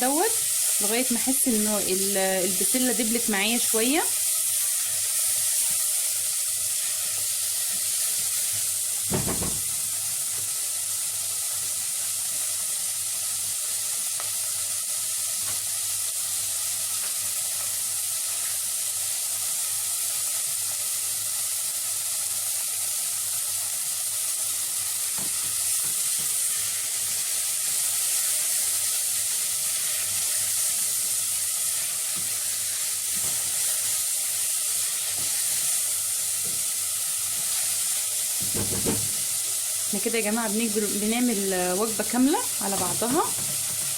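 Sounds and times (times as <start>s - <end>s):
vegetables sizzling in a pot: 0.0s - 43.9s
knock: 9.1s - 9.8s, 38.4s - 39.2s.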